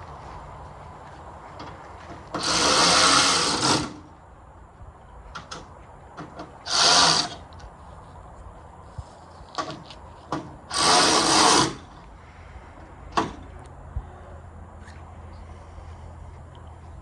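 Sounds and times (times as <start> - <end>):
handheld power tool running: 2.4 - 4.0, 6.7 - 7.4, 10.7 - 11.8.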